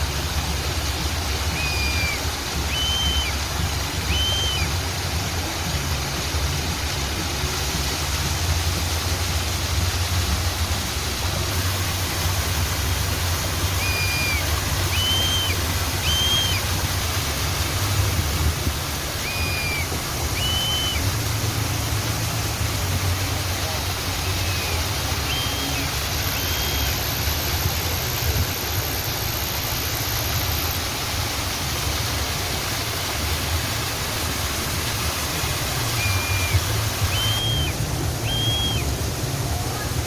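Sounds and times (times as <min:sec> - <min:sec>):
rushing water: 0:00.0 - 0:40.0
bird whistling short notes: 0:01.5 - 0:03.4, 0:04.1 - 0:04.7, 0:13.8 - 0:16.7, 0:19.2 - 0:21.0, 0:36.0 - 0:38.9.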